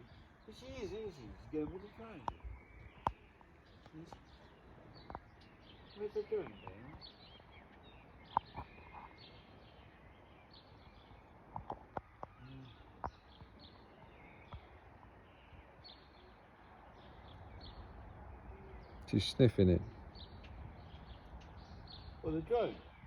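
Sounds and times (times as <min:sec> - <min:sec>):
faint bird chirps: 0:00.0 - 0:23.0.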